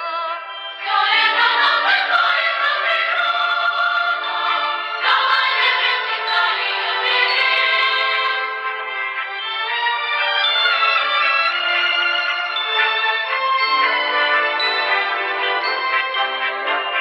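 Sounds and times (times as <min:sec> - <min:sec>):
group singing: 0:00.8 - 0:08.7.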